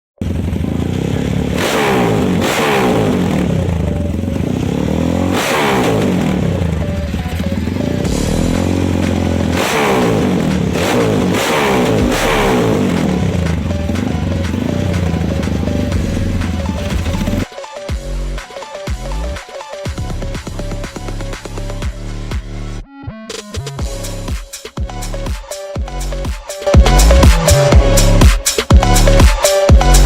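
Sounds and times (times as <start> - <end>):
motorcycle engine revving: 0.2 - 17.5, 26.7 - 30.0.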